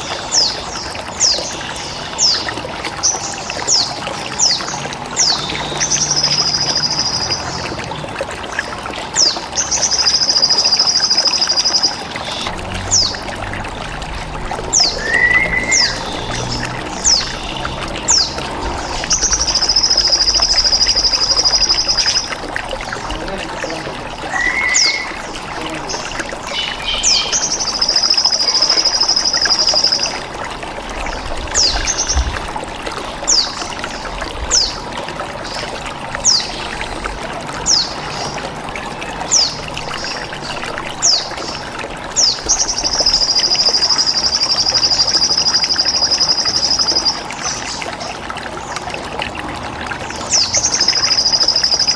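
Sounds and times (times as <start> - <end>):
trickling pouring water: 0.0 - 51.9
high descending bird chirps: 14.8 - 16.3, 23.7 - 25.2.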